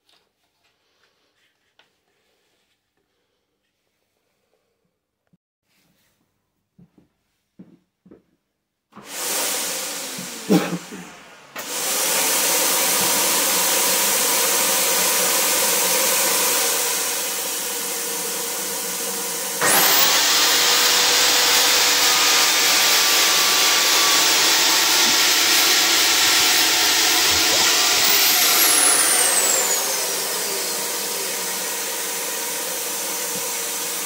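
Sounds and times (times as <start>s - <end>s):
track saw cutting wood: 9.0s - 34.0s.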